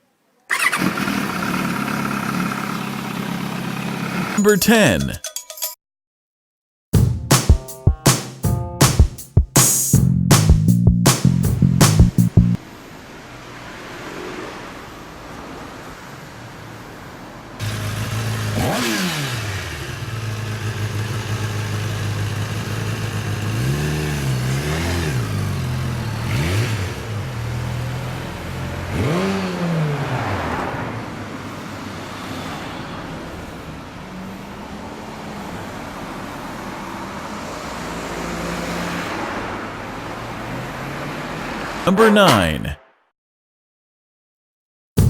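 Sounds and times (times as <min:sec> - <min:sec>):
motorcycle engine revving: 0:17.6 - 0:27.5.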